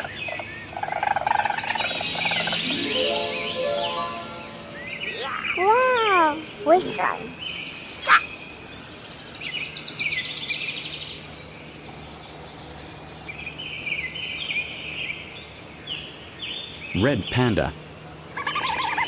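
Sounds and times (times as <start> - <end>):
weasel chattering trills: 0.0 - 7.4.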